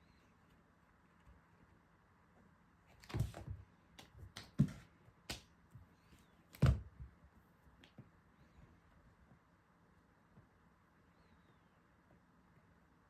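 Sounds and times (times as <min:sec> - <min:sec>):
kitten thumping and tapping: 0:03.0 - 0:05.4.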